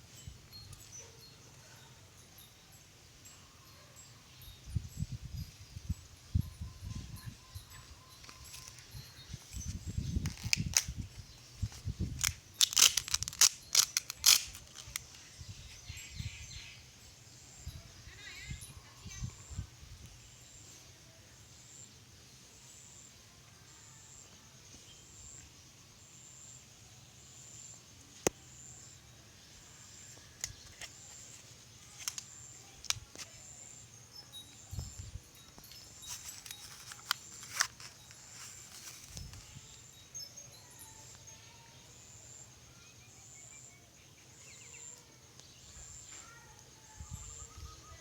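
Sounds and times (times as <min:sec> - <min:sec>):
insect chirping: 0:00.0 - 0:48.0
wind rumble on microphone: 0:04.6 - 0:08.0, 0:08.8 - 0:12.4, 0:17.6 - 0:20.2, 0:34.7 - 0:35.7, 0:47.0 - 0:48.0.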